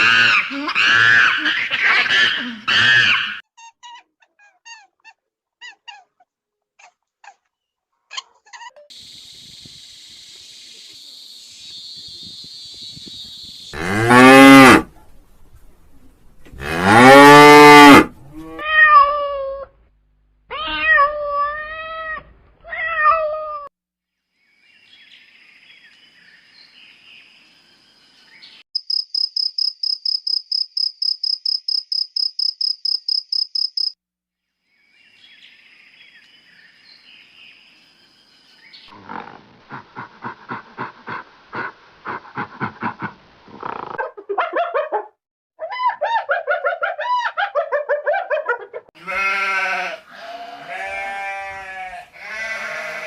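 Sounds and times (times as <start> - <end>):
cow mooing: 13.8 - 14.9, 16.6 - 18.6, 49.0 - 53.0
cat meowing: 18.5 - 19.7, 20.5 - 23.7
fast rhythmic panting: 39.7 - 43.3.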